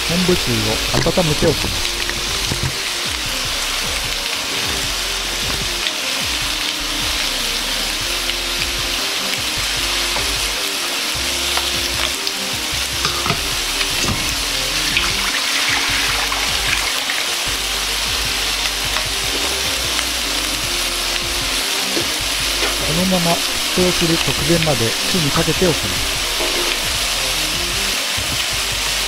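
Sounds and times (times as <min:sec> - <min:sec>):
background music: 0:00.0 - 0:29.0
chicken skin sizzling in a frying pan: 0:00.1 - 0:29.0.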